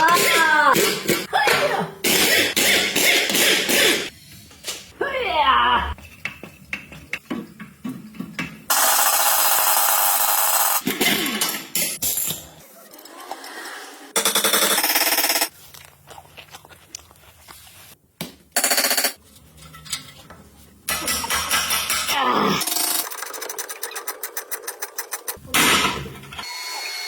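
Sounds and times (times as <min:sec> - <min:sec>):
impact wrench hammering: 0:02.0 - 0:04.1
tools clicking and clanking: 0:18.6 - 0:22.2.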